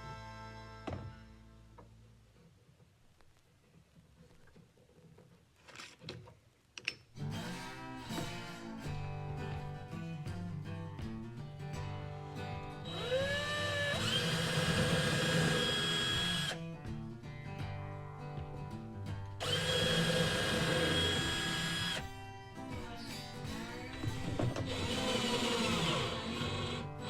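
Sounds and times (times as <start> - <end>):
acoustic guitar music: 0.0 - 2.3, 7.1 - 27.0
electric drill motor whine: 12.9 - 16.6, 19.4 - 22.0, 24.6 - 27.0.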